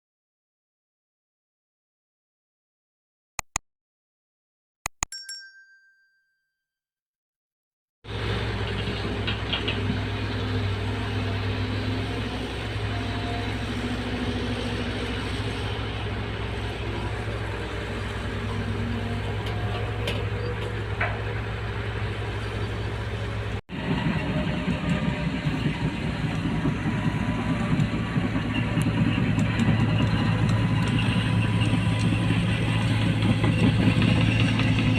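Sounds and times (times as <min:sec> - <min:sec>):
faint higher tone: 0:05.0 - 0:06.7.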